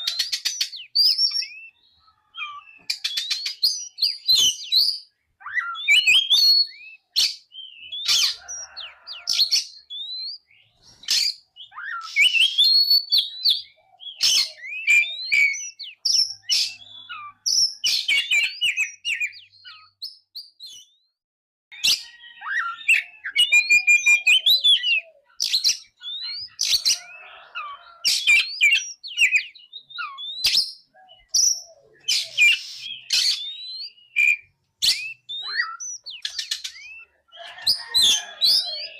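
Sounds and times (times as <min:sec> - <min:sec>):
bird singing whistles and chirps: 0:00.0 - 0:38.9.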